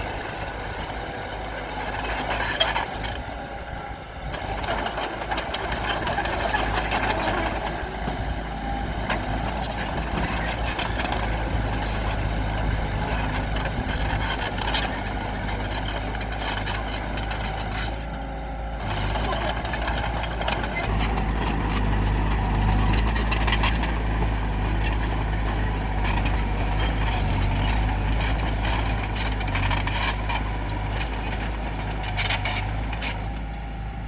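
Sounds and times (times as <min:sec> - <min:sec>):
bulldozer diesel engine: 0:00.0 - 0:34.0
clanks and scrapes among rocks: 0:04.3 - 0:07.9, 0:09.1 - 0:18.1, 0:18.8 - 0:33.4.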